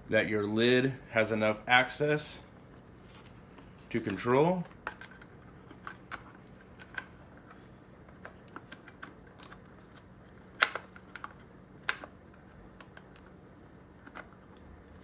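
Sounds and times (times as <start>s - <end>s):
plastic parts clicking and tapping: 4.1s - 13.3s.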